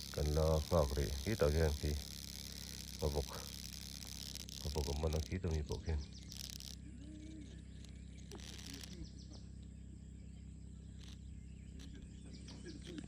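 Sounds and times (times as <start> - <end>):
high-pitched chirping: 0.0 - 9.5
steady low hum: 0.0 - 13.0.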